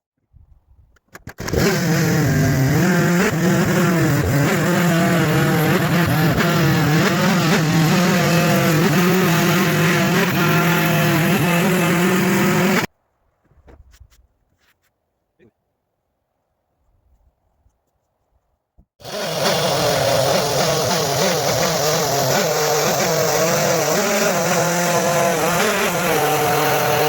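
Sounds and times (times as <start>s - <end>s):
chainsaw cutting wood: 1.1s - 12.9s, 19.0s - 27.0s.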